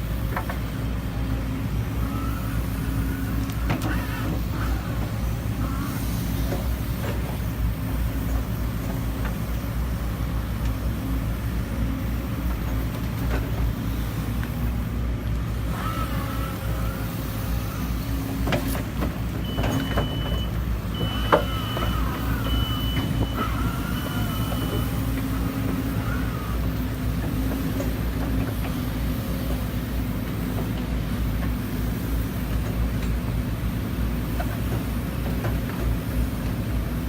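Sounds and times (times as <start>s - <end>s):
diesel engine running: 0.0s - 37.0s
reversing alarm beeping: 19.4s - 25.1s.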